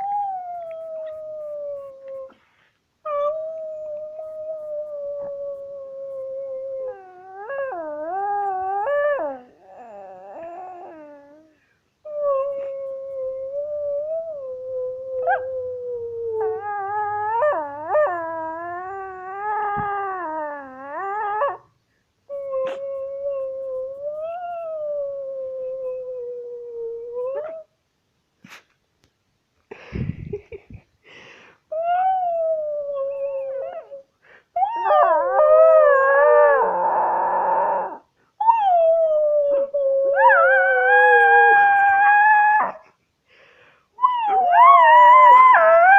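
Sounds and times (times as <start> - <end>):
dog howling: 34.6 - 42.8.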